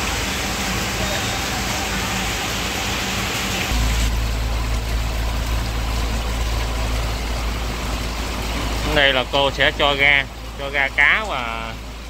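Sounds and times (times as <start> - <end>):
deep low rumble: 3.7 - 11.0.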